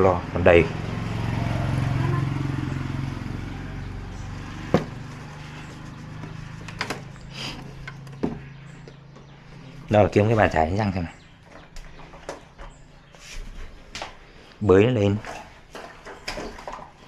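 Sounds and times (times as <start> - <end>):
vehicle engine passing: 0.0 - 12.1.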